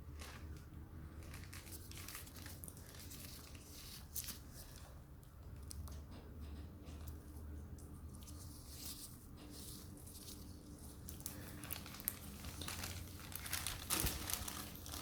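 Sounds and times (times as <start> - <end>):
packaging crinkling and rustling: 0.0 - 4.9, 8.2 - 15.0.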